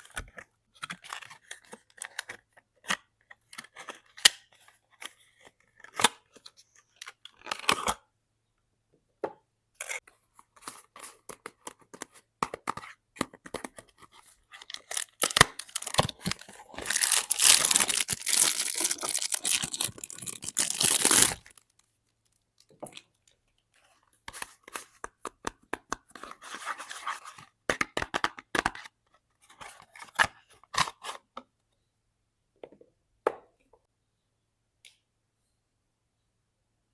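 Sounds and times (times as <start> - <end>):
packaging crinkling: 14.6 - 21.6
wrapper tearing: 14.7 - 21.6.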